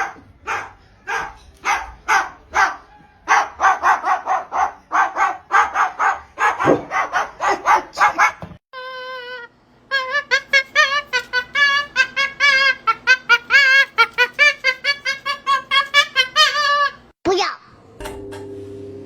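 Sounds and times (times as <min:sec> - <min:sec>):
rapid dog-like barking: 0:00.0 - 0:08.6.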